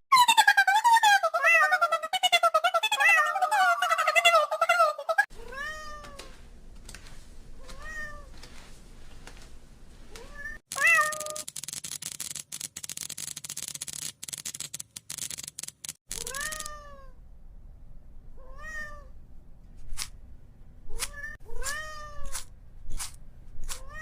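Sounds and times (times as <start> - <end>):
cat meowing: 5.4 - 6.3, 7.6 - 8.3, 10.1 - 11.4, 16.2 - 17.2, 18.4 - 19.1, 20.9 - 22.4
sharp clicks: 10.7 - 16.8.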